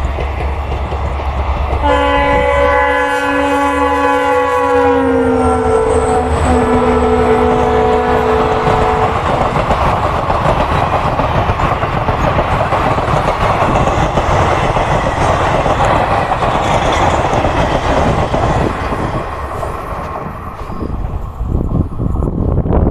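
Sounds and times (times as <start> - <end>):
fast train passing: 0.0 - 22.9
train horn: 1.8 - 9.4.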